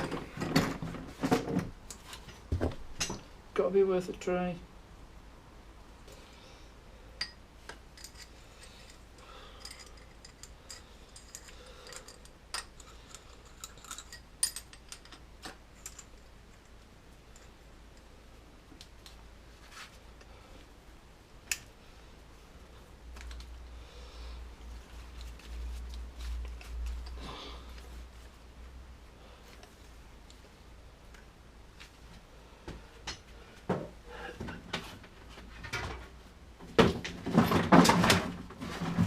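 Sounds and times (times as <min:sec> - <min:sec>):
hand tools clinking: 0:07.2 - 0:17.6.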